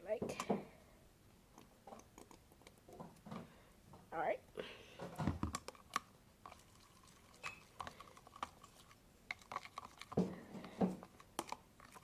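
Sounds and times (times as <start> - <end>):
containers and utensil clicking: 5.4 - 12.0.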